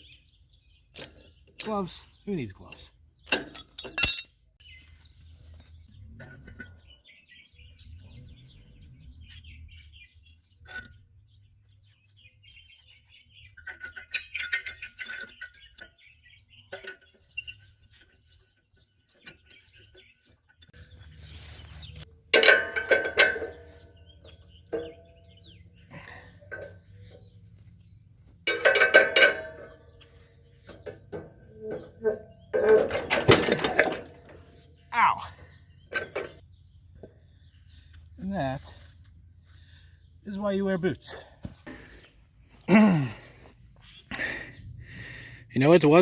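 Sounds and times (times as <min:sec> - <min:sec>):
birds chirping: 0:00.0 - 0:46.0
metallic clanks of tools: 0:00.9 - 0:04.4, 0:13.5 - 0:19.8, 0:21.7 - 0:27.3, 0:28.2 - 0:34.7, 0:35.9 - 0:36.5.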